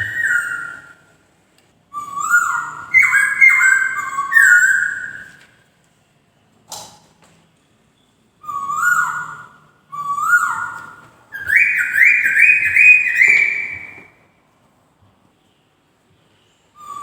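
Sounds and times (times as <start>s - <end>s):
bird whistling song: 0.0s - 1.1s, 1.9s - 5.5s, 8.4s - 14.2s, 16.8s - 17.0s.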